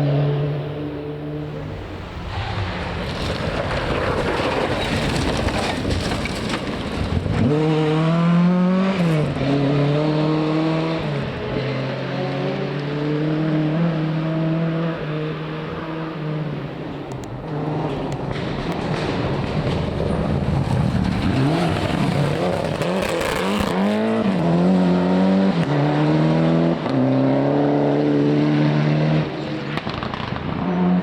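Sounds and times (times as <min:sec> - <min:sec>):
noisy rush: 0:00.0 - 0:07.8, 0:16.6 - 0:24.7
rally car engine revving: 0:06.6 - 0:31.0.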